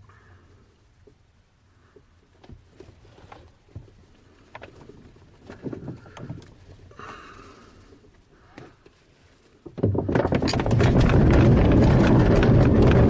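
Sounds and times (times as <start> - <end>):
clicks knocks and rattles: 9.6 - 13.0.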